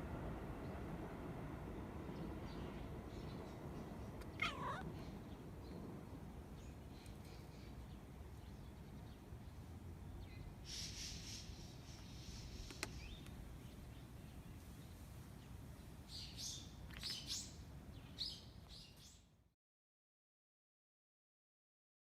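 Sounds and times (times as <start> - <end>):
low steady background noise: 0.0 - 19.5
small birds chirping: 2.0 - 19.3.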